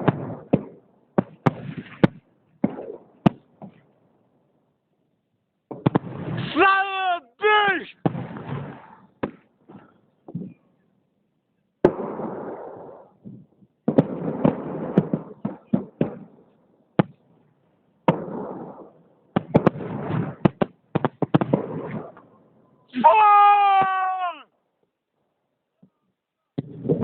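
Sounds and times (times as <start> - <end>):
fireworks bangs: 0.0 - 3.9, 5.7 - 6.9, 7.6 - 10.6, 11.8 - 16.4, 18.0 - 22.3, 26.6 - 27.0.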